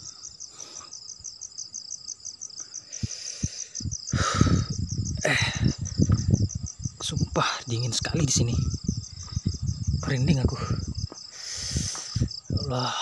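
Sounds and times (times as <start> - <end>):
crickets trilling: 0.0 - 13.0
soft low thumps: 8.4 - 11.2.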